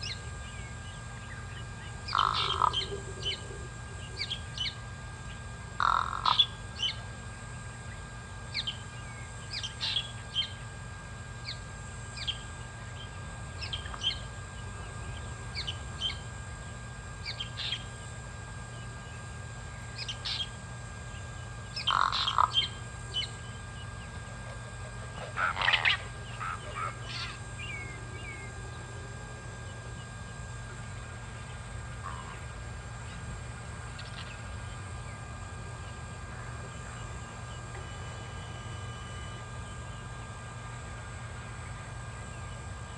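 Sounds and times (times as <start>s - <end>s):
low hum: 0.0s - 42.9s
crow calling harshly: 2.0s - 3.4s, 5.8s - 6.6s, 21.8s - 22.8s, 24.9s - 28.5s.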